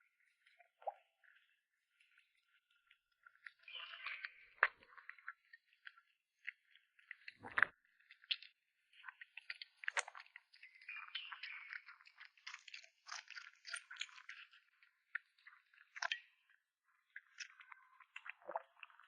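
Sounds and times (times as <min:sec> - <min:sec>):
cat chewing and crunching food: 0:11.6 - 0:15.8.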